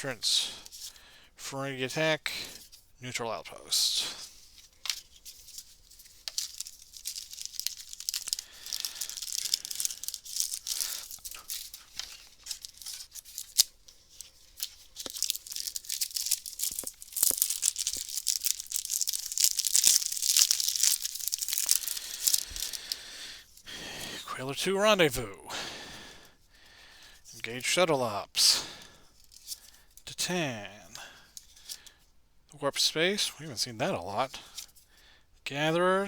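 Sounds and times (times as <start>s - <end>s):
wrapper tearing and crinkling: 4.4s - 23.1s.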